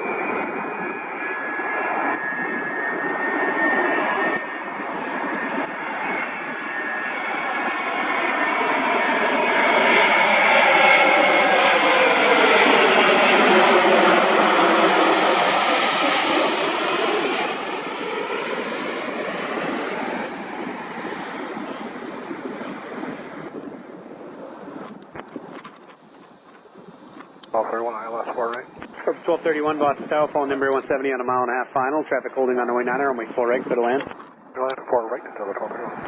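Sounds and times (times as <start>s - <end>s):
jet airliner passing overhead: 0.0s - 36.0s.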